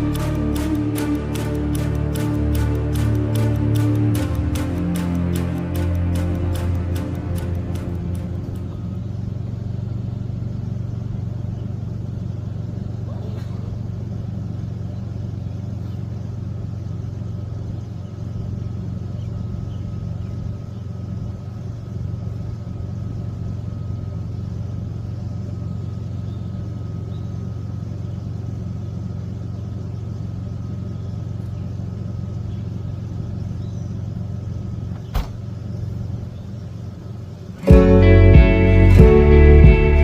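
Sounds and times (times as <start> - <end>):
sharp click: 0.0 - 8.8
steady low rumble: 0.0 - 34.9, 35.5 - 40.0.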